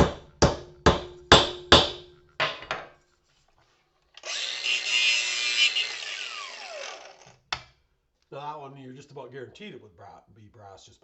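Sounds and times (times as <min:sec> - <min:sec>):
hammer smashing porcelain: 0:00.0 - 0:02.9
power grinder grinding: 0:04.2 - 0:07.4.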